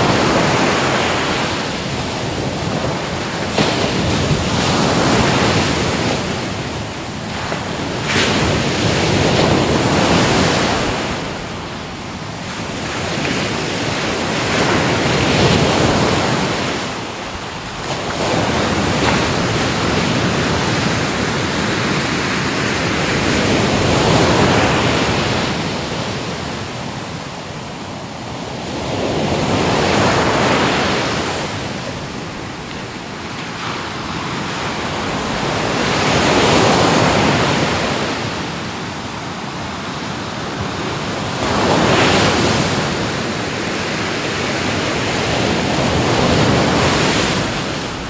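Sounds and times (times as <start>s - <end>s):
ocean waves breaking: 0.0s - 48.0s.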